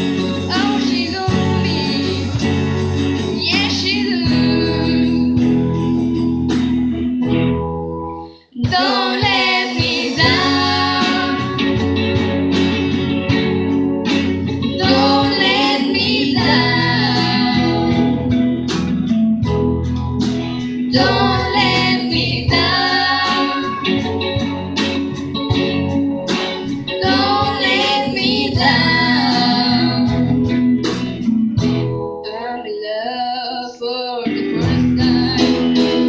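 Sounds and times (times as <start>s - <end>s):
person singing: 0.0s - 2.6s, 3.3s - 5.5s, 8.6s - 11.9s, 14.7s - 18.4s, 20.9s - 24.1s, 27.0s - 30.6s, 32.2s - 36.0s
acoustic guitar: 0.0s - 36.0s.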